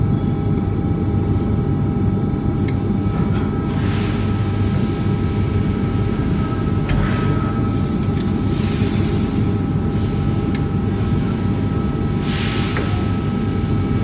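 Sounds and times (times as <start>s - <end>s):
press brake humming: 5.5s - 11.6s.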